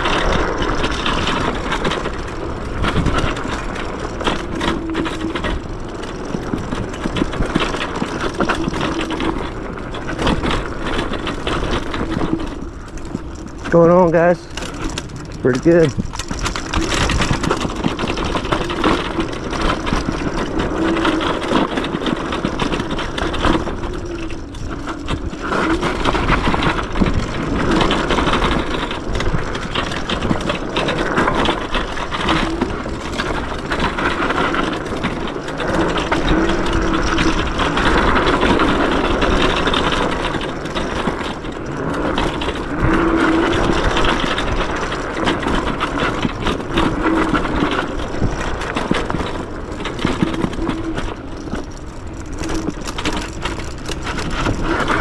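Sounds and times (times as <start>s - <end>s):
scooter knocks and rattles: 0.0s - 55.0s
wind and tyre noise: 0.0s - 55.0s.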